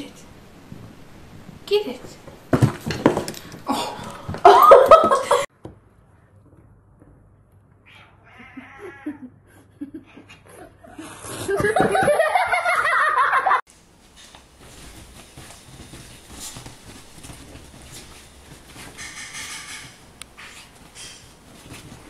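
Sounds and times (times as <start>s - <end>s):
person laughing loudly: 4.4s - 5.5s, 8.8s - 13.6s
bedding rustling: 11.6s - 22.0s
cat and dog scuffling: 14.0s - 22.0s.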